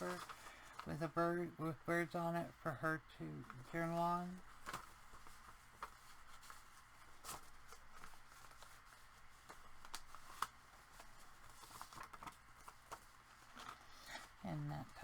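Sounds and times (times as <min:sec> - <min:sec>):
paper rustling and clicking: 0:00.0 - 0:01.0, 0:03.3 - 0:14.3
low steady hum: 0:00.0 - 0:15.0.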